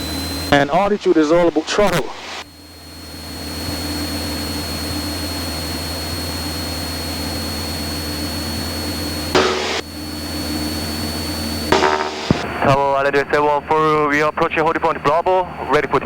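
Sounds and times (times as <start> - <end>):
burst of noise: 0.0 - 12.8
high whine: 0.0 - 12.8
light aircraft engine drone: 0.0 - 16.0.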